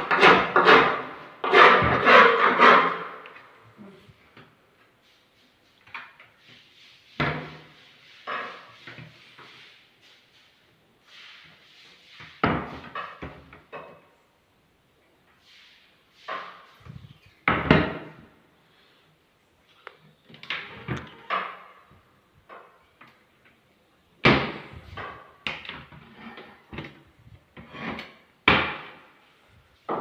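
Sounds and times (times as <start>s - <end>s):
wooden knocks and scrapes: 0.0s - 3.5s, 4.9s - 10.3s, 11.1s - 13.9s, 16.2s - 18.3s, 20.3s - 23.6s, 24.2s - 30.0s.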